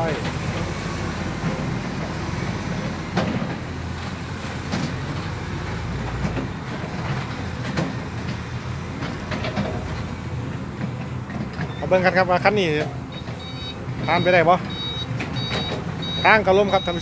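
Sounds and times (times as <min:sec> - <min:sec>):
diesel dump truck rumbling: 0:00.0 - 0:17.0
metallic clanks and knocks: 0:09.0 - 0:10.1.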